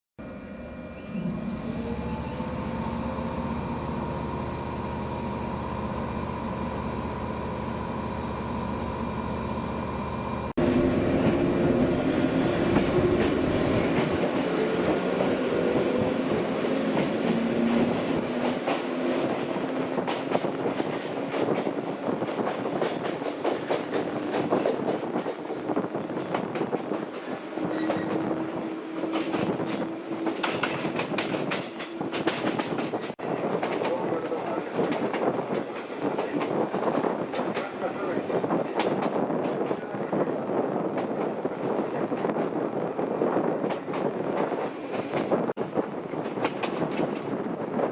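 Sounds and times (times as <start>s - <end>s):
train motor whine: 0.2s - 14.0s
rail clicking over joints: 29.0s - 40.2s.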